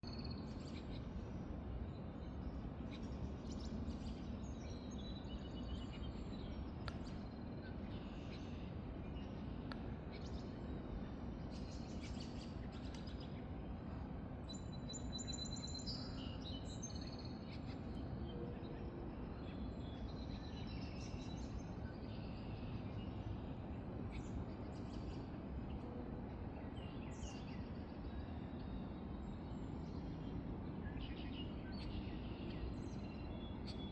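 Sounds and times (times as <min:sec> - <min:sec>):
small birds chirping and trilling: 0:26.4 - 0:33.9.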